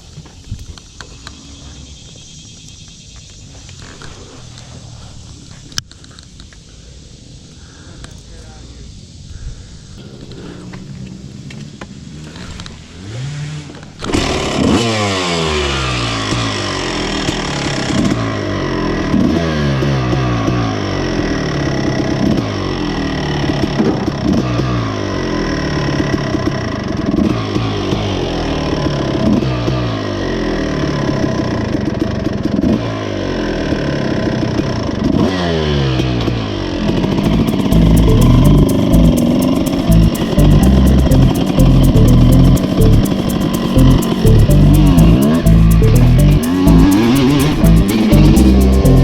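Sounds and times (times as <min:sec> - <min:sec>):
motorcycle engine revving: 0:10.3 - 0:22.4, 0:35.1 - 0:41.5
dirt bike engine revving: 0:12.1 - 0:19.9.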